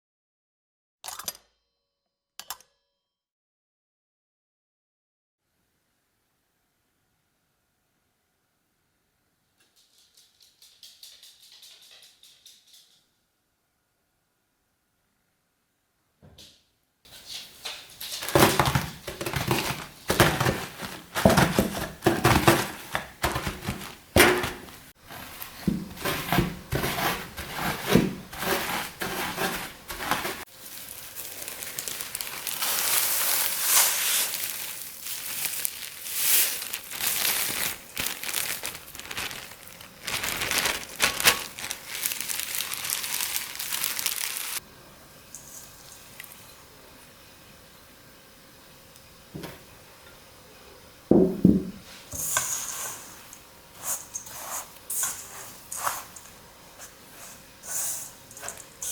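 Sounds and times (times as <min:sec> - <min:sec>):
biscuits and plastic packet crushed: 0:18.2 - 0:27.7, 0:28.4 - 0:44.6.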